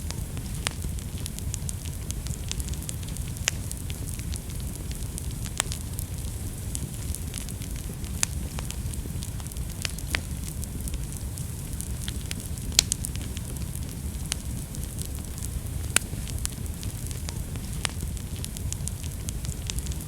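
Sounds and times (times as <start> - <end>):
fire crackling and popping: 0.0 - 20.0
fire flames rumbling: 0.0 - 20.0.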